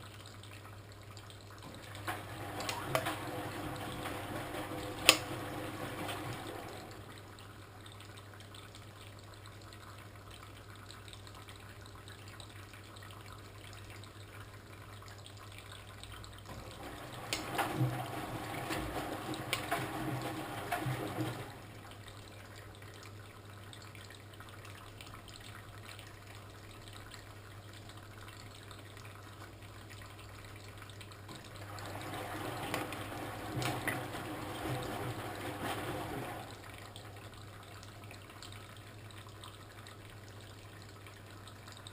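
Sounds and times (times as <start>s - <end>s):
washing machine low hum: 0.0s - 10.0s, 10.8s - 41.9s
water sloshing in turning drum: 1.6s - 7.3s, 16.5s - 22.3s, 31.2s - 38.6s.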